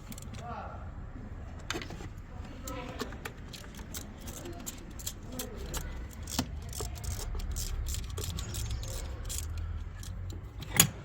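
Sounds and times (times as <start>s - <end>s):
metallic clicks of hand tools: 3.5s - 11.0s.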